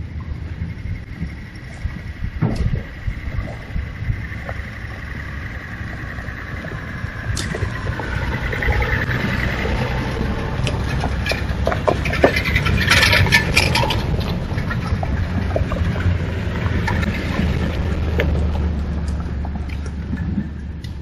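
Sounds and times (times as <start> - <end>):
truck engine humming: 0.0 - 21.0
clicks and crackles: 10.6 - 21.0.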